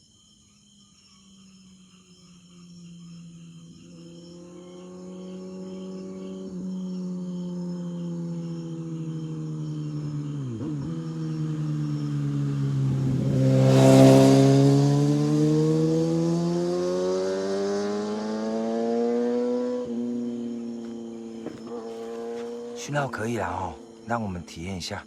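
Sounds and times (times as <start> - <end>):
engine running: 4.0 - 24.1.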